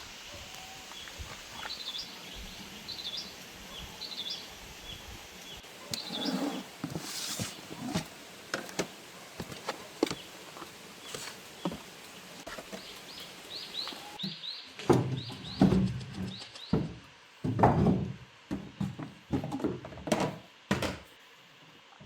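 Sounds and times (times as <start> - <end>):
heavy knocks and thuds: 16.7 - 21.0.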